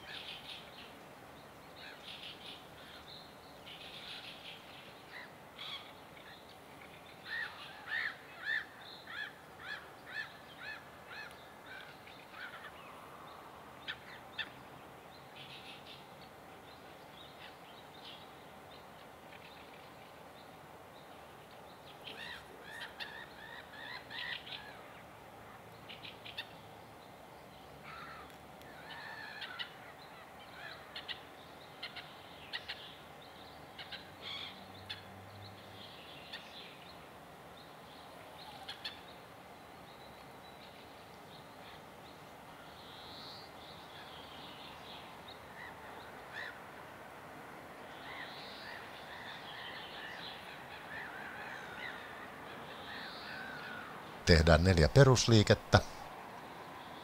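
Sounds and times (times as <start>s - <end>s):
birds chirping: 52.7s - 56.1s.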